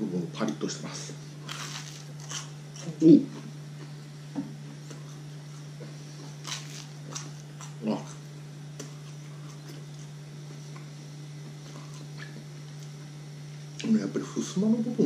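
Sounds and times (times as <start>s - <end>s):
steady low hum: 0.0s - 15.0s
bread crust crunching: 1.4s - 2.9s, 4.7s - 13.0s.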